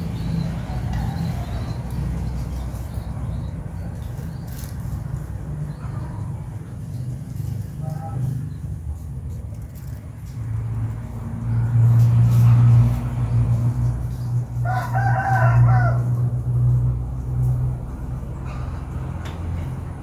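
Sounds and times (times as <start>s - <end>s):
rooster crowing: 0.5s - 1.8s, 14.6s - 16.4s.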